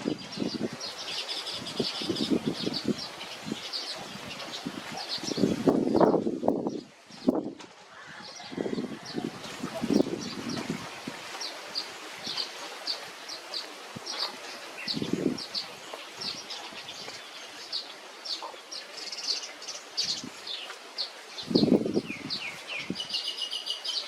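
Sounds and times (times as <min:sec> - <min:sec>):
faint background hiss: 0:00.0 - 0:24.0
small birds chirping: 0:00.0 - 0:24.0.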